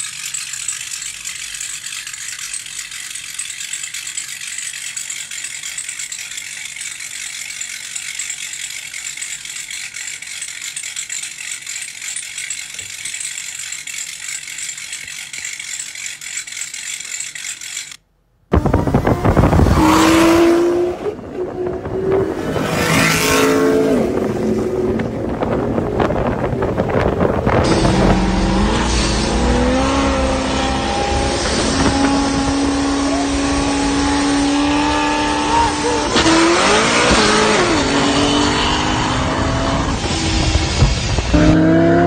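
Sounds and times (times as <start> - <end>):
race car engines at full throttle: 18.5 - 42.0.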